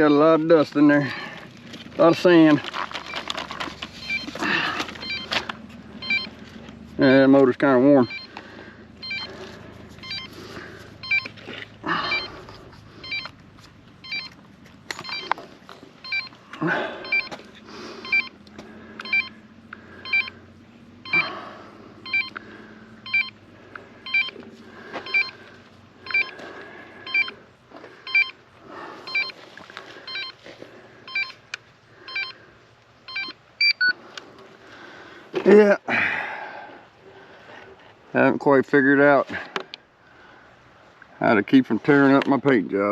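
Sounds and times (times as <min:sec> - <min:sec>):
electronic beep: 0:03.0 - 0:03.3, 0:03.9 - 0:05.4, 0:06.0 - 0:06.4, 0:08.0 - 0:08.4, 0:09.0 - 0:09.4, 0:10.0 - 0:10.4, 0:11.0 - 0:12.4, 0:13.0 - 0:13.4, 0:14.0 - 0:14.4, 0:15.0 - 0:15.4, 0:16.0 - 0:16.4, 0:17.0 - 0:17.4, 0:18.0 - 0:18.4, 0:19.0 - 0:19.4, 0:20.0 - 0:20.4, 0:21.0 - 0:21.4, 0:22.0 - 0:22.4, 0:23.0 - 0:23.4, 0:24.0 - 0:24.4, 0:25.0 - 0:25.4, 0:26.0 - 0:26.4, 0:27.1 - 0:27.4, 0:28.1 - 0:28.4, 0:29.1 - 0:29.4, 0:30.1 - 0:30.4, 0:31.1 - 0:31.4, 0:32.1 - 0:32.4, 0:33.1 - 0:34.0.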